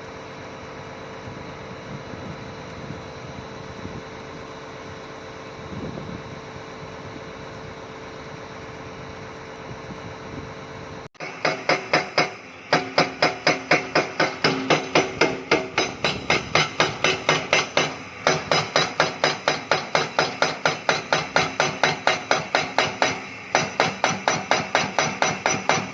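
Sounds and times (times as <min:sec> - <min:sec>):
excavator engine running: 0:00.0 - 0:25.9
rapid even hammering: 0:11.2 - 0:25.9.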